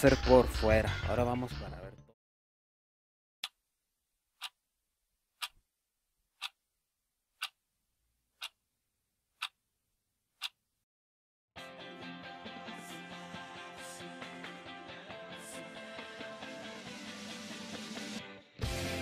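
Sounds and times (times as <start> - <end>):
clock ticking: 6.4 - 6.6, 7.4 - 7.6, 8.4 - 8.6
guitar music: 11.6 - 19.0.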